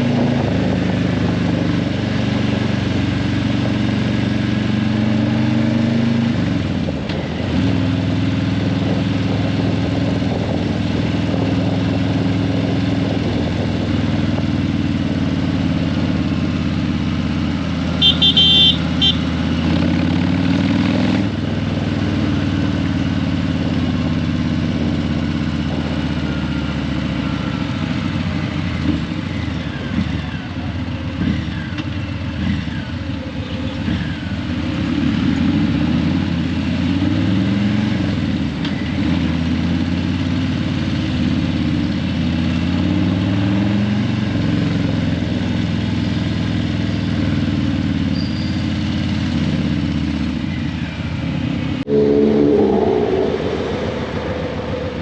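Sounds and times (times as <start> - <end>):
vehicle horn honking: 18.0 - 19.3, 51.9 - 54.4.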